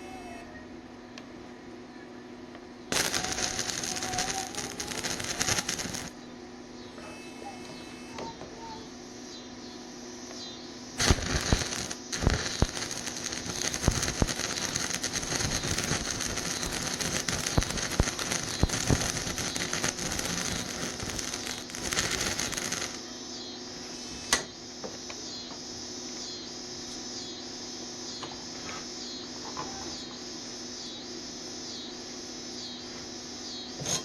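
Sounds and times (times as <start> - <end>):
sharp pops: 2.9 - 6.1, 11.0 - 23.0
welding arc crackling: 2.9 - 6.2, 11.0 - 23.0.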